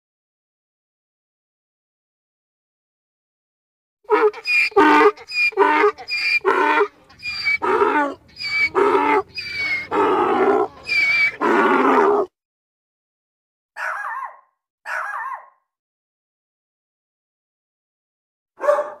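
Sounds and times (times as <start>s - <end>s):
donkey braying: 4.1s - 12.3s.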